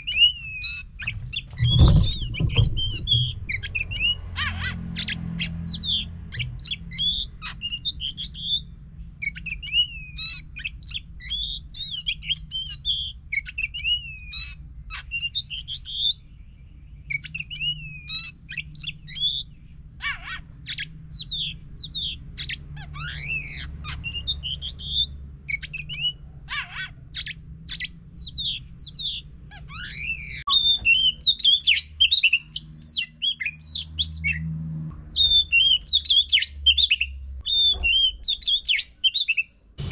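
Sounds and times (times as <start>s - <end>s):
bird singing whistled phrases: 9.2s - 16.2s, 17.0s - 19.5s, 27.2s - 34.4s, 35.1s - 39.5s.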